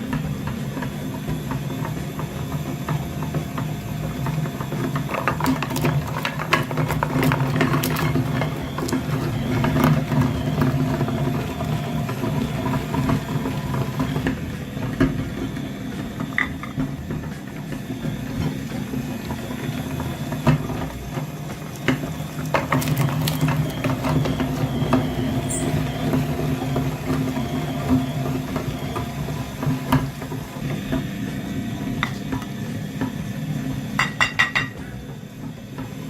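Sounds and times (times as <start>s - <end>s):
small motor humming: 18.0s - 32.5s.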